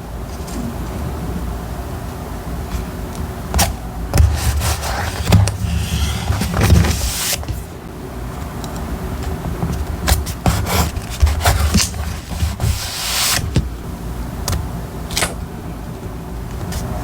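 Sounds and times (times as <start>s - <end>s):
paper rubbing and scraping: 4.2s - 7.8s, 10.1s - 13.6s
paper rustling: 4.2s - 7.8s, 9.7s - 13.6s.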